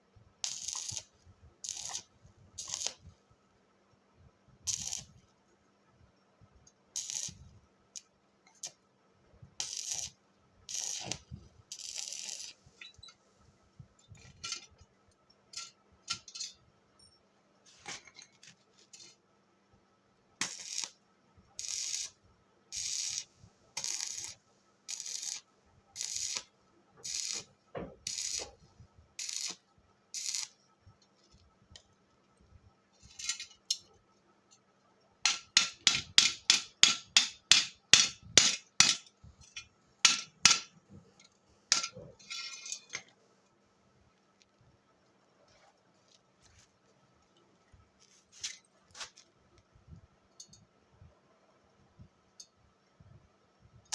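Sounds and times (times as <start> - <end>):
faint steady hum: 0.0 - 53.9
scraping strokes on metal: 9.6 - 13.2, 22.8 - 25.4, 26.0 - 28.6, 33.0 - 33.8, 41.7 - 43.1.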